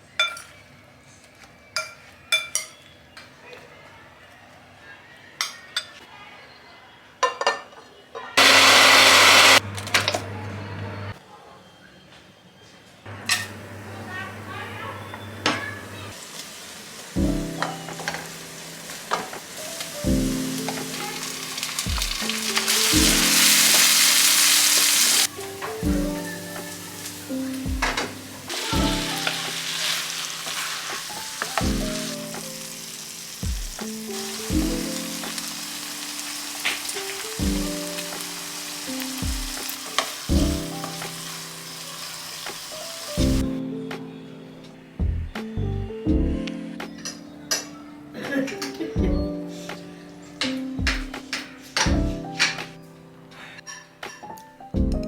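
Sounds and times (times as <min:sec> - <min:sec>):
soft background music: 0:00.0 - 0:06.1, 0:11.1 - 0:55.0
electric blender running: 0:08.4 - 0:09.6
food sizzling in a pan: 0:08.4 - 0:09.6, 0:13.3 - 0:43.5.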